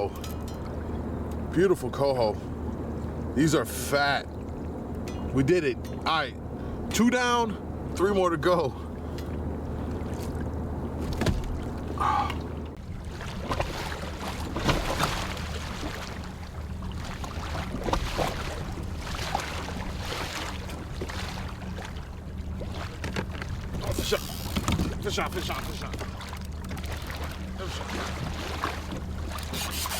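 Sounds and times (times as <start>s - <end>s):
steady low hum: 0.0s - 29.9s
gear knocking and clicking: 23.0s - 26.0s.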